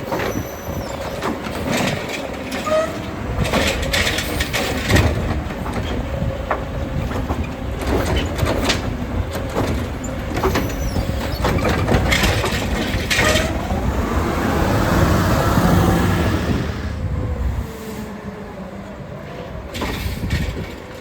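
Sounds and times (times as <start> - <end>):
truck engine and hydraulics whine: 0.0 - 21.0
metal knocks and clanks: 0.1 - 13.8.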